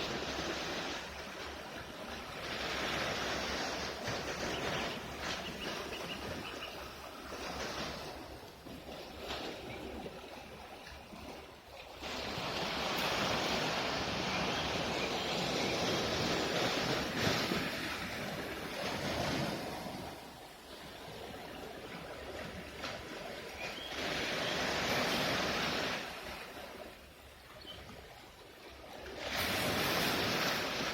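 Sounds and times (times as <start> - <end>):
sea waves washing on shore: 0.0 - 30.9.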